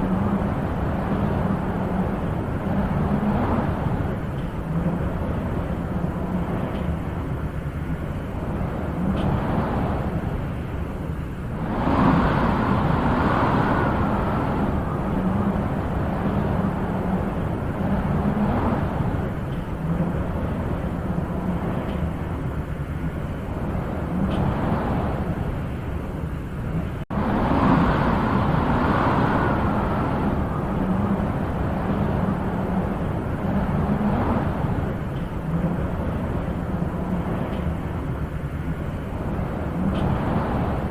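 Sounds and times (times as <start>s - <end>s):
wind blowing: 0.0s - 40.9s.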